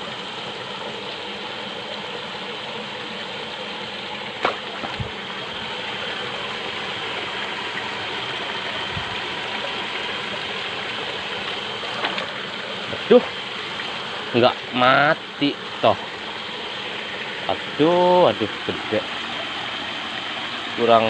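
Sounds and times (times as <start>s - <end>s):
stream running water: 0.0s - 21.0s
sharp knock: 4.4s - 5.1s.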